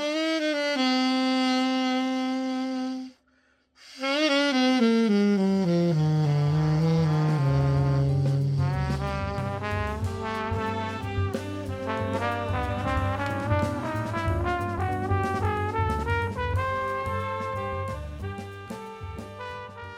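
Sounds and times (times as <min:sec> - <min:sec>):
jazz horn melody: 0:00.0 - 0:03.2, 0:03.9 - 0:19.9
bass line: 0:05.6 - 0:19.9.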